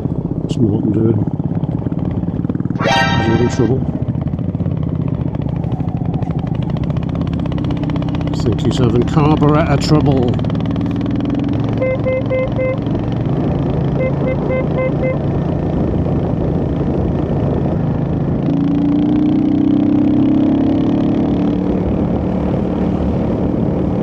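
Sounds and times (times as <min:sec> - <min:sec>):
short electronic beeps: 0:02.8 - 0:03.8
motorcycle engine running: 0:04.2 - 0:15.8.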